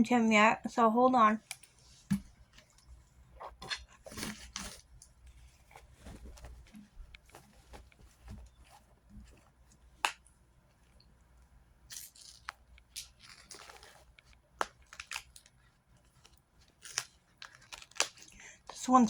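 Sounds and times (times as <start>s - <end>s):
packaging rustling and tearing: 3.6s - 9.0s, 11.9s - 18.4s.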